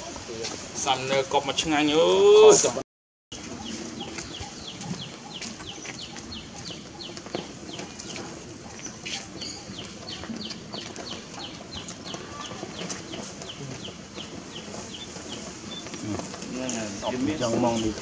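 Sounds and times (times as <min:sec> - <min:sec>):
bird chirping: 0:03.4 - 0:16.3.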